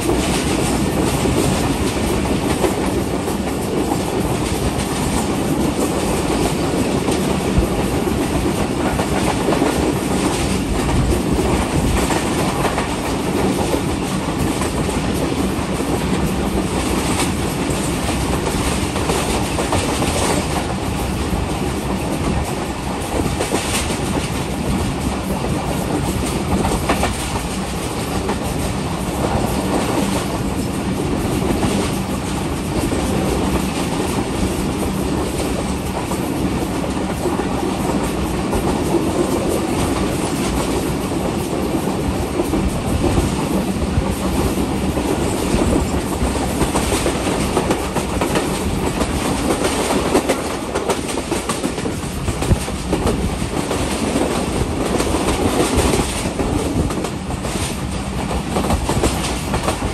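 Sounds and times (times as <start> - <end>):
train rumbling along track: 0.0 - 59.9.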